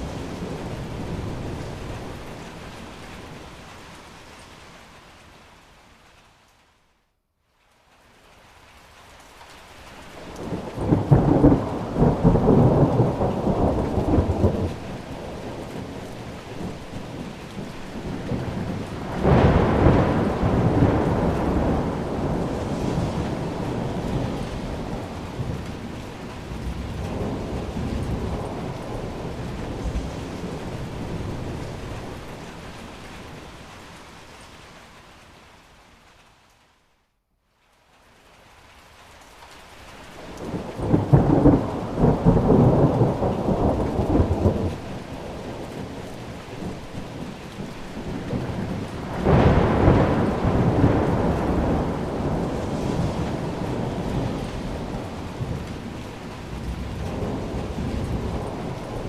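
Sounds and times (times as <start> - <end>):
steady rain: 0.0 - 59.0
rolls of thunder: 10.4 - 32.8, 40.3 - 59.0.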